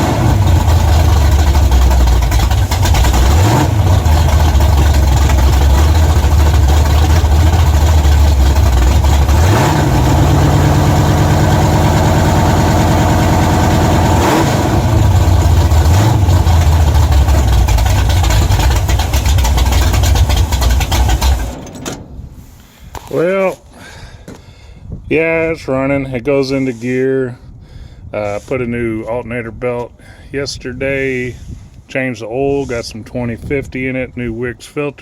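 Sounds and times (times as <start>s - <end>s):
car engine revving and idling: 0.0s - 21.9s.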